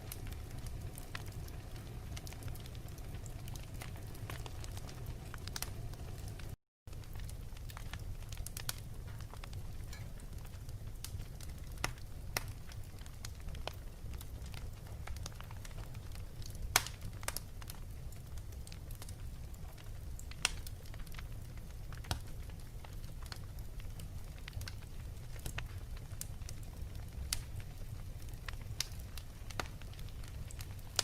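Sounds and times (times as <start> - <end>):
fire crackling: 0.0 - 31.0
sharp pops of fire: 0.1 - 17.8, 19.6 - 21.2.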